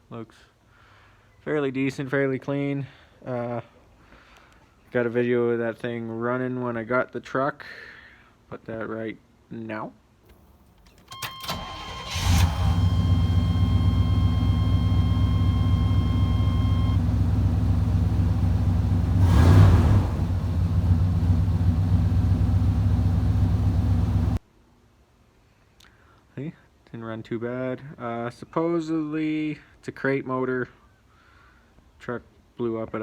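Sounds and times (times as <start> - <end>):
car engine starting and idling: 10.4 - 24.4
engine revving: 11.4 - 24.4.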